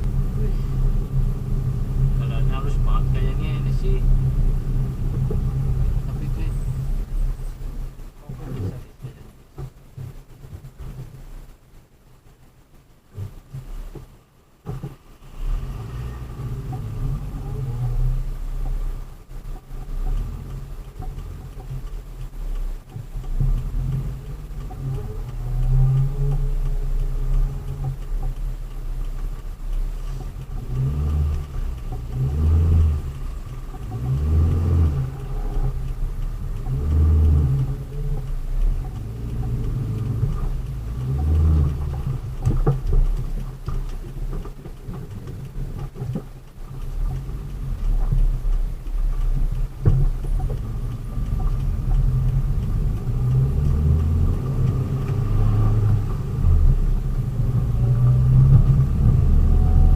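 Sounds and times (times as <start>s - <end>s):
road noise inside cab: 0.0s - 59.9s
vehicle engine rumble: 0.0s - 59.9s.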